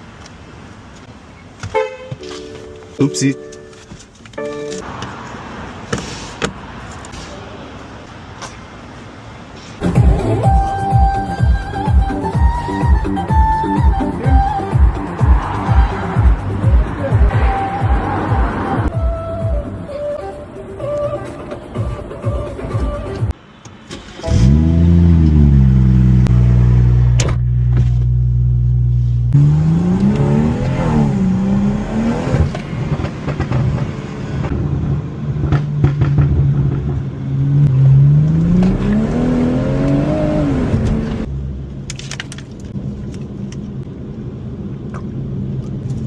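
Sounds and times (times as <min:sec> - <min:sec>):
car engine starting and revving: 0:09.8 - 0:19.8, 0:24.2 - 0:41.8.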